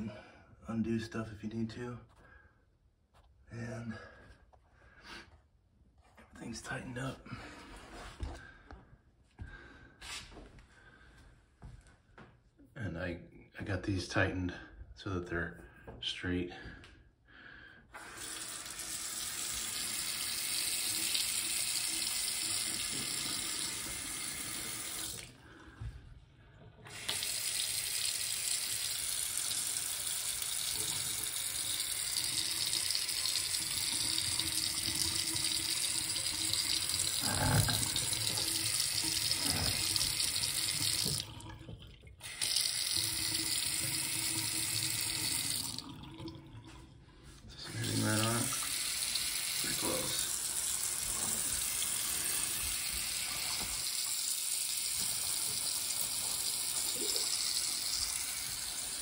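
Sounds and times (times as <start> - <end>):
faucet running into sink: 18.0 - 25.3, 26.8 - 46.9, 47.7 - 59.0.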